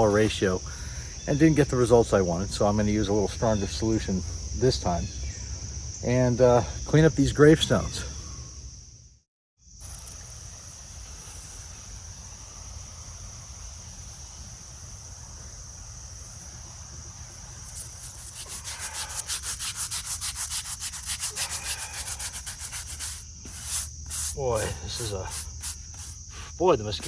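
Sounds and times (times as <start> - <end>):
insects droning: 0.0 - 27.0
brush scrubbing stone: 17.7 - 26.3.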